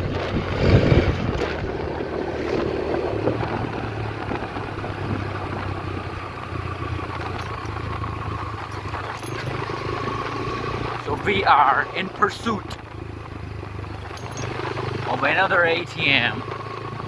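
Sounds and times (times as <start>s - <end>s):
wind rushing over microphone: 0.0s - 6.4s
motorcycle engine running: 0.0s - 17.0s.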